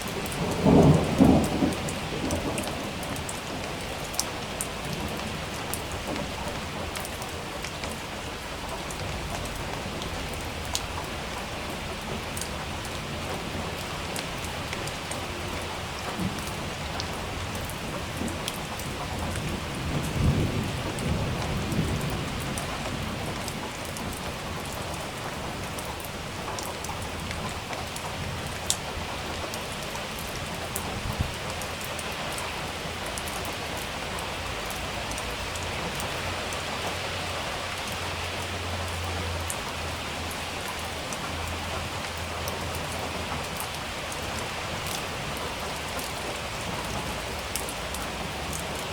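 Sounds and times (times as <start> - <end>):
steady rain: 0.0 - 48.9
thunder rumbling: 0.1 - 3.7, 14.6 - 25.8.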